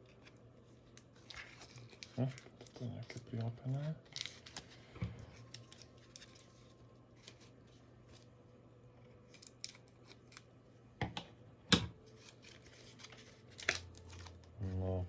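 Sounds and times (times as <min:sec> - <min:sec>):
package rustling: 0:00.1 - 0:08.3, 0:12.1 - 0:14.4.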